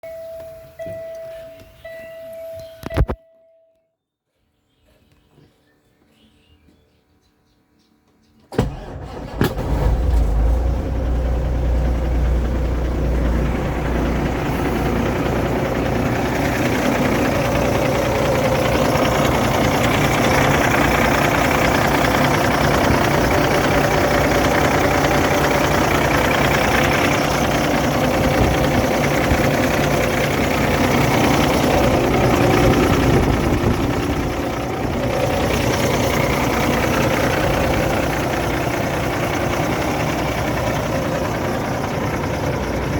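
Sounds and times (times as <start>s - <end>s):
diesel engine starting and idling: 8.5s - 42.9s.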